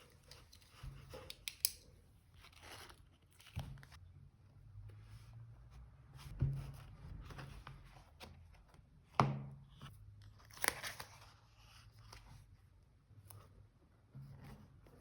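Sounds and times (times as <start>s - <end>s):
paper rustling and crinkling: 10.3s - 12.5s.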